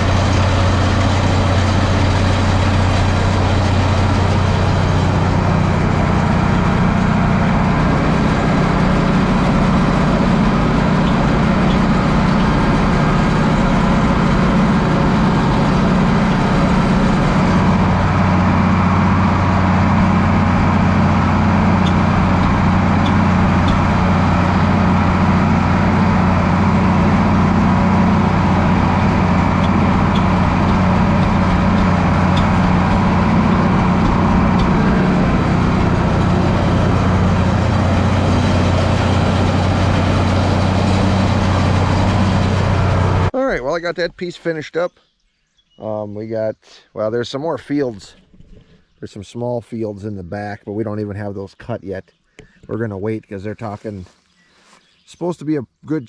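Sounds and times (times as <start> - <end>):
tractor diesel engine running: 0.0 - 43.4.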